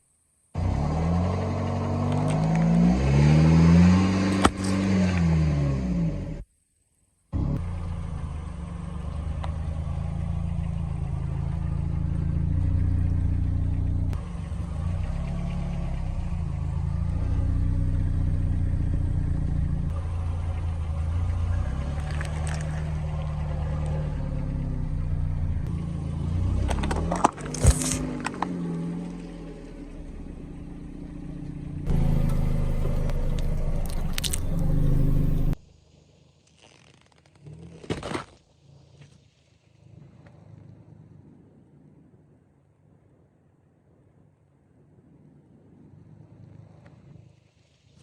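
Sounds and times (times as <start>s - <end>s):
car engine running at low speed: 0.5s - 6.6s, 7.3s - 39.1s, 39.7s - 48.0s
tyres crushing objects: 26.7s - 28.5s.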